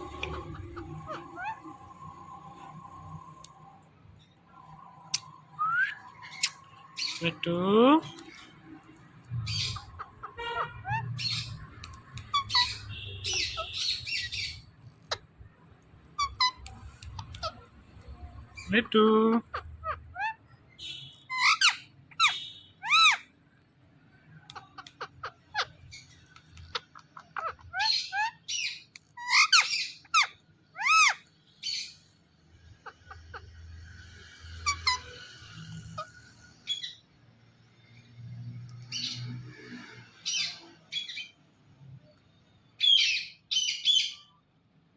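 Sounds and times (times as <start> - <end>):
parrot squawking harshly: 0.0 - 2.0, 9.5 - 11.6, 12.2 - 15.2, 19.5 - 23.3, 26.7 - 31.9, 34.6 - 35.2
parrot whistled calls: 4.6 - 7.2.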